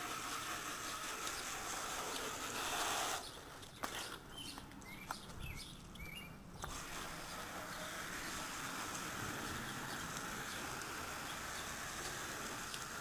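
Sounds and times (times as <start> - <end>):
garden hose spraying water: 0.0 - 3.4, 6.6 - 13.0
birds chirping: 0.8 - 12.9.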